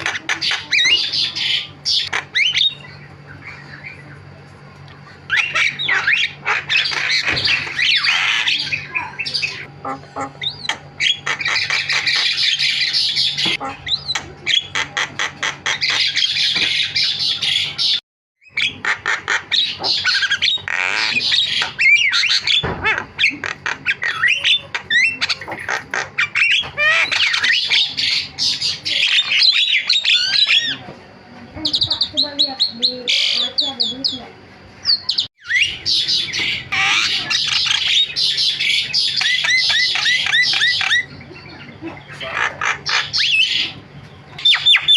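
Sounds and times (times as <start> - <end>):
myna chattering: 0.0 - 4.1.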